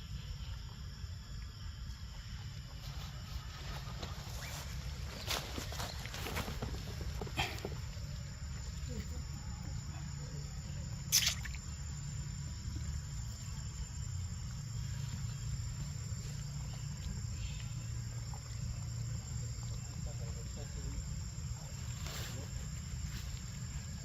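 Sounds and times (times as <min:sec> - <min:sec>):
high-pitched insect drone: 0:00.0 - 0:24.0
sharp click: 0:11.1 - 0:11.6.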